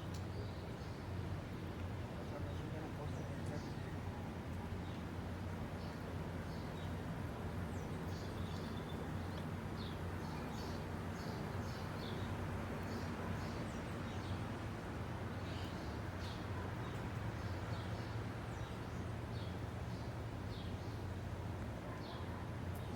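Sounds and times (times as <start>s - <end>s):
small birds chirping: 7.7s - 14.5s.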